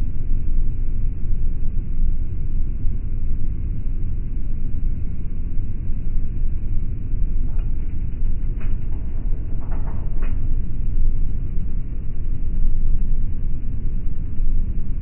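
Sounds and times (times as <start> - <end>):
airliner cabin engine rumble: 2.7 - 15.0.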